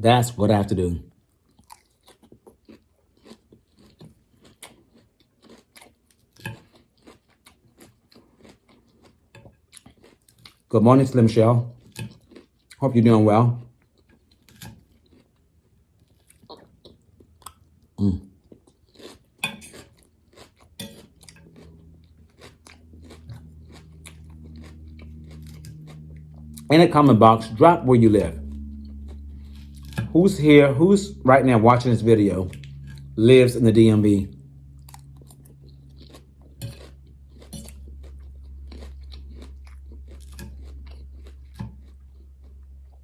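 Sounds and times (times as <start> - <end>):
chewing crunchy salad: 1.2 - 43.0
low steady hum: 10.5 - 43.0.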